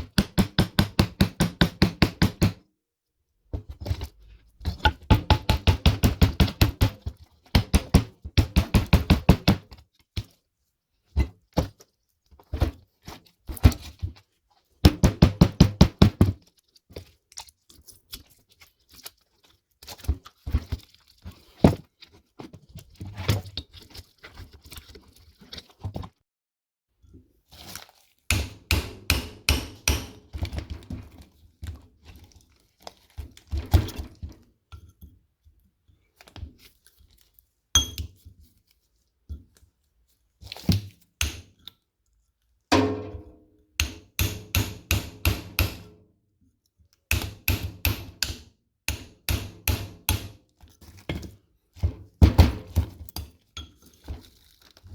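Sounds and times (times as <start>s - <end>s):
ringing metal clang: 37.8s - 38.0s, 42.7s - 43.4s.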